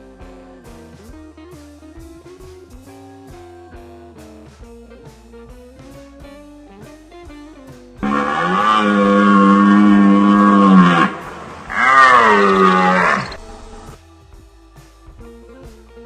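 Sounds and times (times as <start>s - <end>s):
bluesy guitar and drum music: 0.0s - 16.0s
loud animal call: 8.0s - 14.0s.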